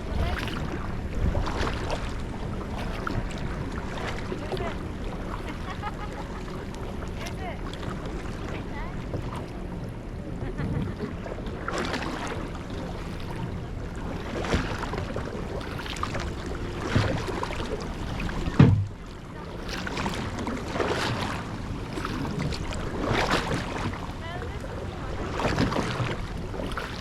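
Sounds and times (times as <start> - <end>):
kayak paddle splashing in water: 0.0 - 9.7, 10.8 - 27.0
sharp thump: 18.6 - 19.0.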